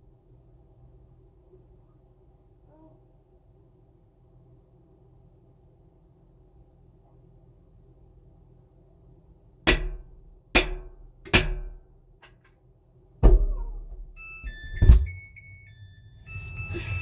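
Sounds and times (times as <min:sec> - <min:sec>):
phone knocking against metal drum: 0:09.7 - 0:11.8, 0:13.2 - 0:15.1
electronic beeps: 0:14.2 - 0:17.0.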